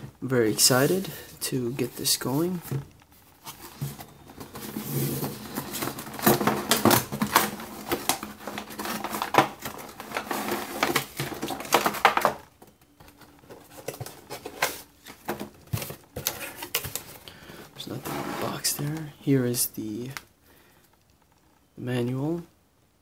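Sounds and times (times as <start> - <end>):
cardboard box rustling: 1.8 - 17.2.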